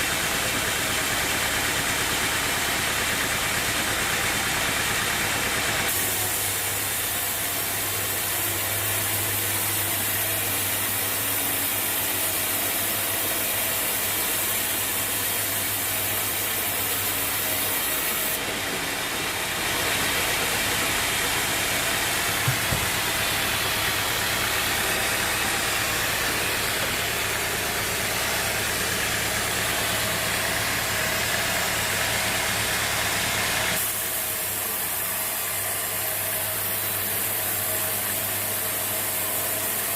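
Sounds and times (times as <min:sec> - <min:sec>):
bandsaw mill running: 0:00.0 - 0:39.9
brief knock: 0:22.4 - 0:23.2.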